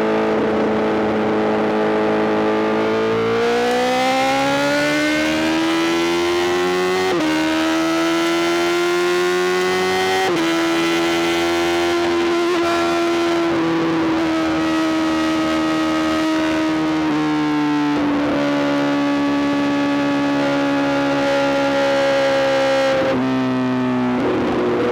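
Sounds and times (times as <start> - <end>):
motorcycle engine revving: 0.4 - 17.1.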